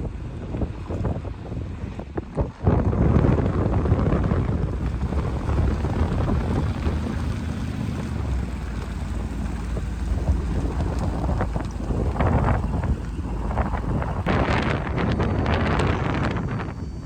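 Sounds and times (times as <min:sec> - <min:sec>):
truck engine rumbling: 0:00.0 - 0:17.0
wind noise on microphone: 0:00.0 - 0:17.0.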